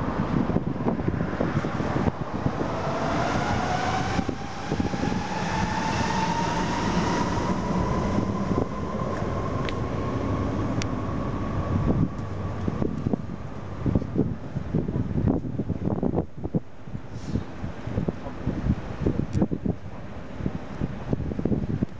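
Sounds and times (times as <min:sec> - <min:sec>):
motorcycle engine rising in pitch: 0:01.7 - 0:13.3.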